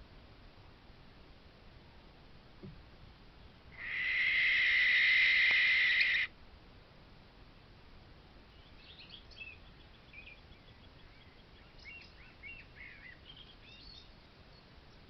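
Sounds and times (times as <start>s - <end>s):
steady background hiss: 0.0s - 15.0s
faint bird chirps: 3.4s - 6.3s, 8.5s - 15.0s.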